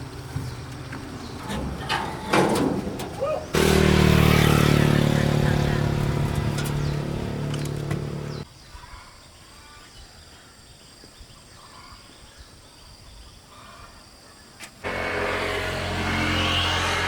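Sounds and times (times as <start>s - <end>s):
engine running: 0.0s - 8.4s, 14.8s - 17.0s.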